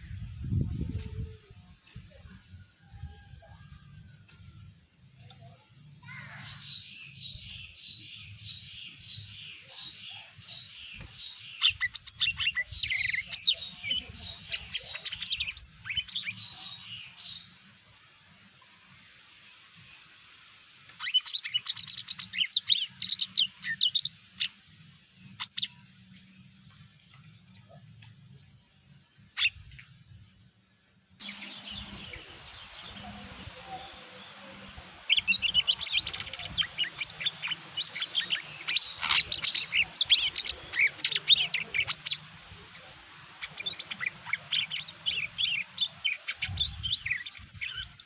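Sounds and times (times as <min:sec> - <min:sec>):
bird chirps and trills: 0:31.2 - 0:48.0
sharp bird calls: 0:31.2 - 0:48.0.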